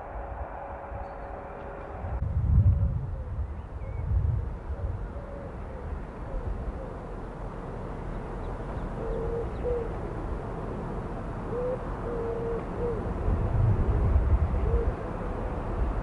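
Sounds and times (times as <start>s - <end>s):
bird low hooting: 0.0s - 2.2s, 2.8s - 7.3s, 8.1s - 10.5s, 11.4s - 15.4s
low rumble: 0.0s - 5.2s.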